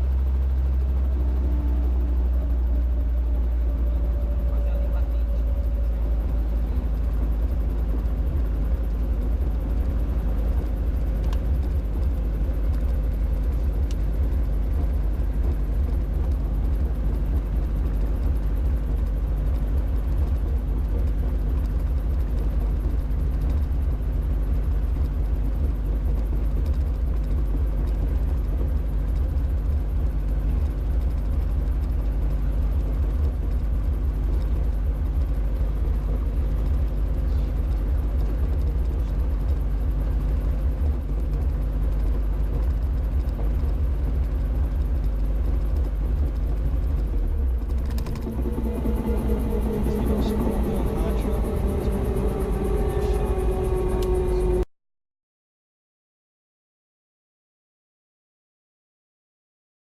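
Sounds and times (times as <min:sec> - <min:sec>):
helicopter engine and rotors rumbling: 0:00.0 - 0:54.7
low steady hum: 0:00.0 - 0:54.7.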